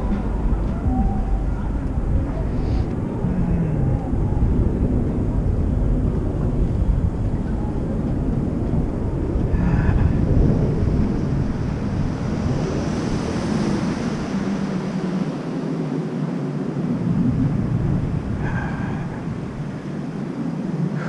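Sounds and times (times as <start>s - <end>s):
street travel rumble: 0.0s - 14.9s
wind noise on microphone: 0.0s - 21.0s.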